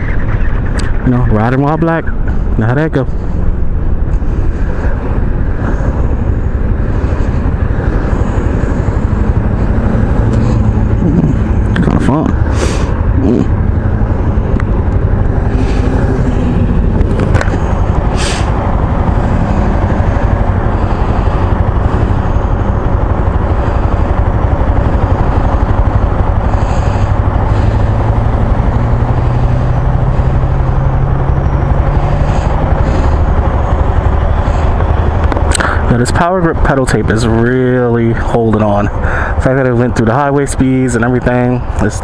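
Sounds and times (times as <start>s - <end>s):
scooter engine drone: 0.0s - 42.0s
wind rush on microphone: 0.0s - 42.0s.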